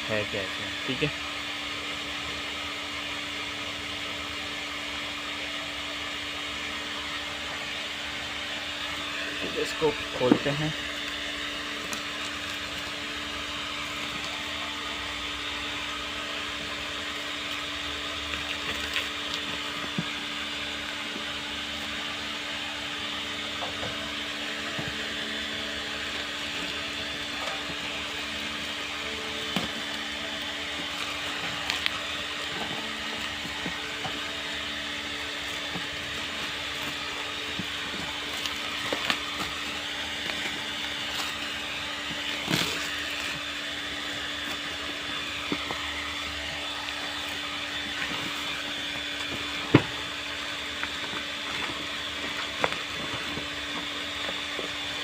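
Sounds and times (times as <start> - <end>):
steady mechanical hum: 0.0 - 55.0
cardboard box being handled: 23.9 - 55.0.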